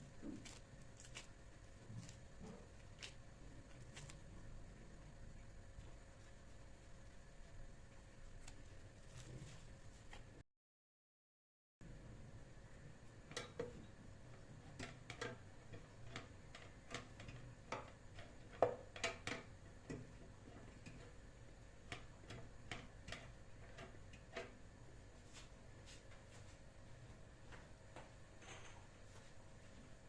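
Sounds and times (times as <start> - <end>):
light clicks and taps in kitchen: 13.0 - 26.6, 27.4 - 29.4.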